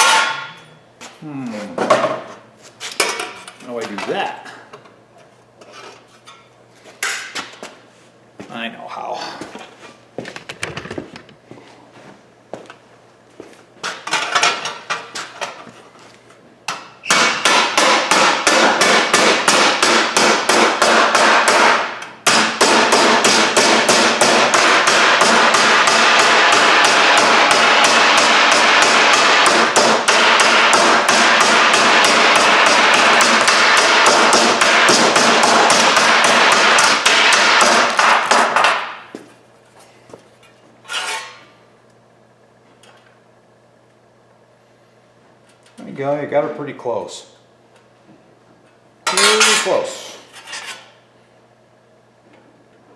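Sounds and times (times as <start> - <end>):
hammer pounding steel panel: 17.1 - 39.0.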